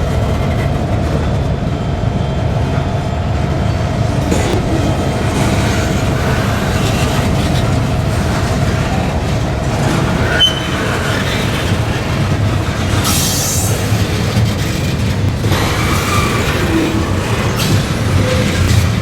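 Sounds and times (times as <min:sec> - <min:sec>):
freight train rumbling on rails: 0:00.0 - 0:19.0
high squeal: 0:04.2 - 0:19.0.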